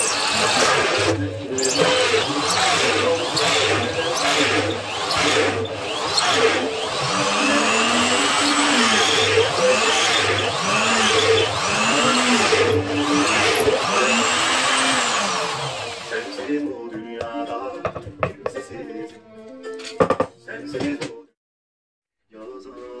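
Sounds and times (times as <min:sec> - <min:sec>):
power tool motor running: 0:00.0 - 0:16.4.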